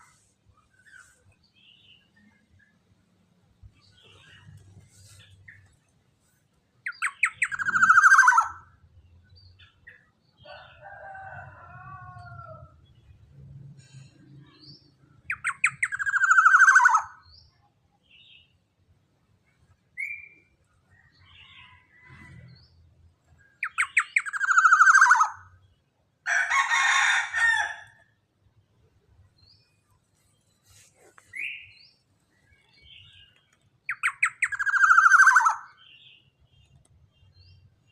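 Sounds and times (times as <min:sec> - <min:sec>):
soft bird warbling: 0:06.9 - 0:08.6
oriole calling: 0:07.0 - 0:08.7.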